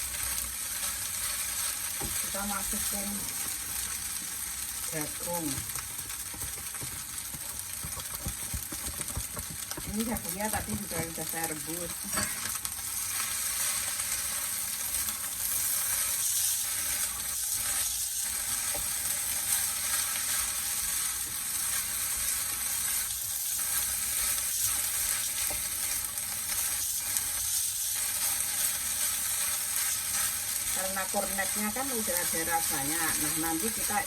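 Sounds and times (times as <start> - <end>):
fried rice sizzling in pan: 0.0 - 34.0
utensil scraping and tapping pan: 6.0 - 11.4, 12.0 - 12.6.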